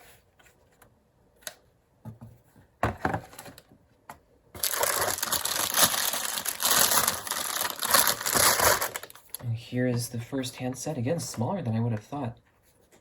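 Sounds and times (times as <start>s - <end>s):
packaging rustling and crinkling: 4.6s - 9.4s.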